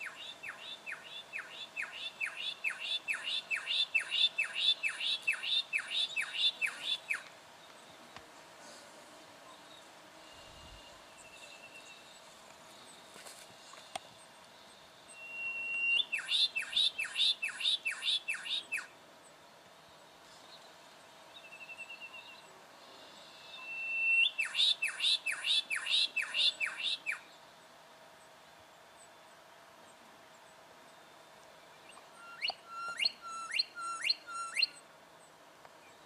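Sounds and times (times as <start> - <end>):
bird whistle with descending notes: 15.2 - 18.9, 23.6 - 27.2, 32.2 - 34.8.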